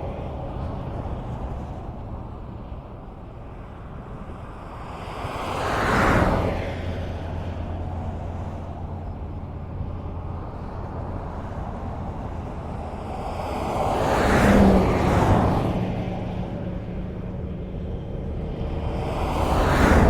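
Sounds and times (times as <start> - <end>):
highway traffic: 0.0 - 20.0
vehicle passing close by: 4.9 - 20.0.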